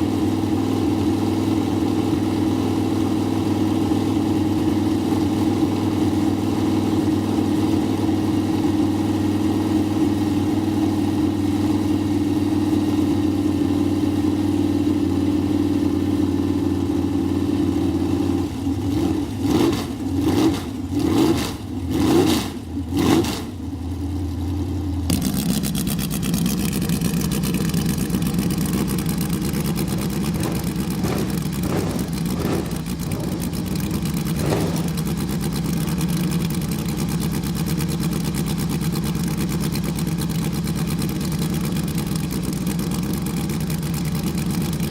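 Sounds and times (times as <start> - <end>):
race car engine idling and revving: 0.0 - 44.9
engine running at lower pitch: 11.6 - 40.4.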